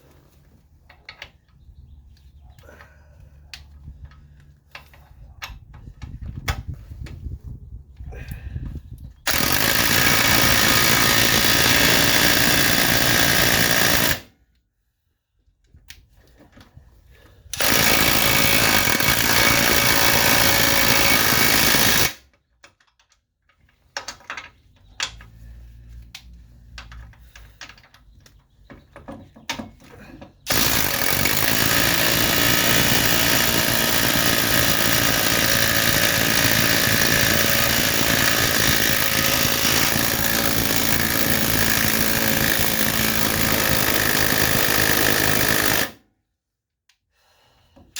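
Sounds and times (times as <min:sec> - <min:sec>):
impact wrench hammering: 0:09.3 - 0:14.3, 0:17.6 - 0:22.2, 0:30.5 - 0:46.0.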